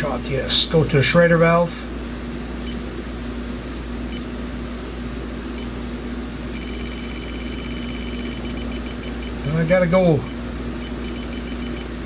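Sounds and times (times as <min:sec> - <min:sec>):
steady low hum: 0:00.0 - 0:12.0
leak detector beeping: 0:02.6 - 0:02.8, 0:06.5 - 0:12.0
fast alarm tone: 0:06.6 - 0:11.8.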